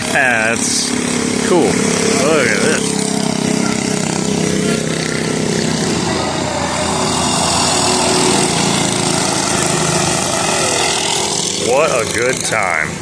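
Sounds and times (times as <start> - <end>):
mini bike engines racing: 0.0 - 13.0.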